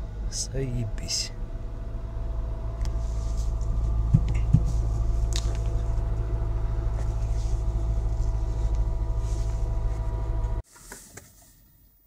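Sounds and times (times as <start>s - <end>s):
car engine idling: 0.0s - 10.6s
short low thumps: 1.8s - 10.6s.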